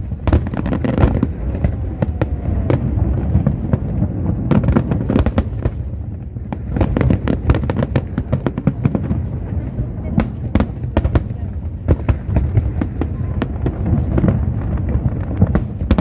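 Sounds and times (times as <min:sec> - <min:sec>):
low rumble: 0:00.0 - 0:06.7
fireworks bangs: 0:00.0 - 0:16.0.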